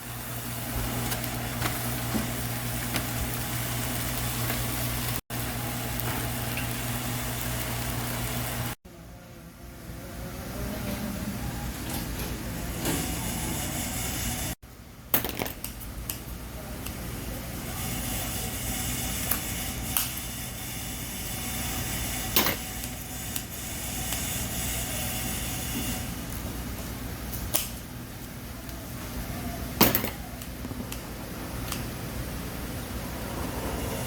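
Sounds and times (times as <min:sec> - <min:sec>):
chicken sizzling over fire: 0:00.0 - 0:08.8
low hum: 0:30.0 - 0:34.0.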